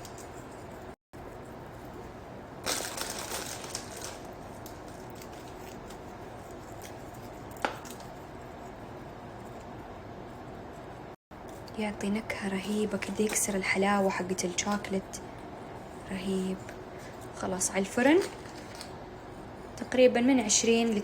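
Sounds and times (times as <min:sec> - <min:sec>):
salt flakes crumbled crackly rustle: 0:02.6 - 0:05.6.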